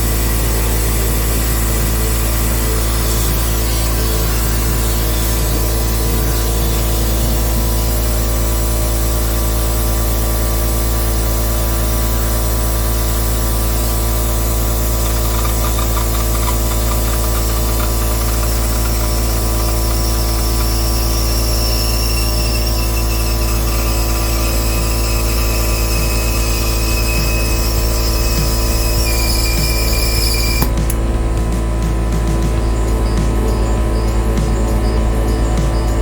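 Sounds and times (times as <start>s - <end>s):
mechanical hum with hiss: 0.0s - 36.0s
thin high squeal: 1.8s - 9.7s, 12.1s - 30.9s.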